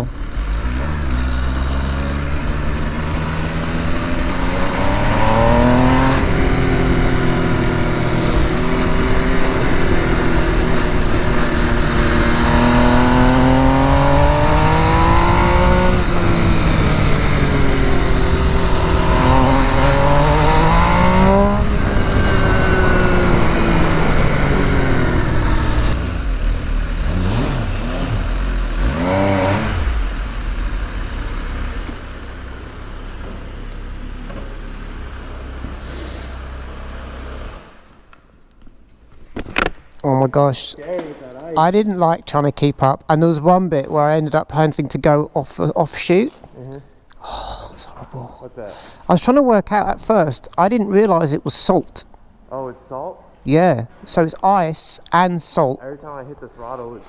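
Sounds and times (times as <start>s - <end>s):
motorcycle engine accelerating: 0.0s - 38.3s
wind rush: 17.5s - 26.2s.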